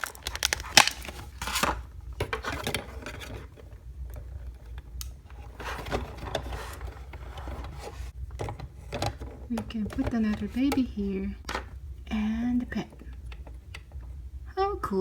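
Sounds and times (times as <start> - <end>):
plastic toy pieces clicking: 0.0 - 1.1.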